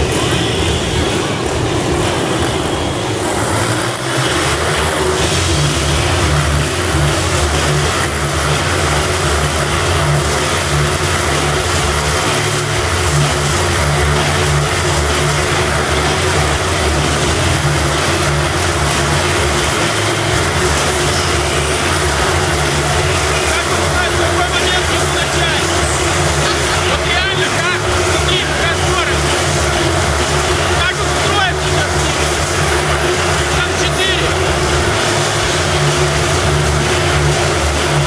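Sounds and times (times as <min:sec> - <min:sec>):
motorcycle engines running hard: 0:00.0 - 0:38.0.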